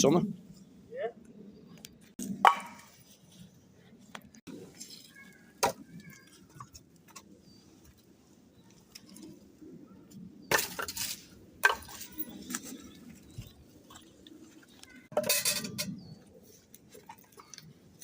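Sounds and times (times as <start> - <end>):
cookware and utensils clattering: 15.0 - 16.1.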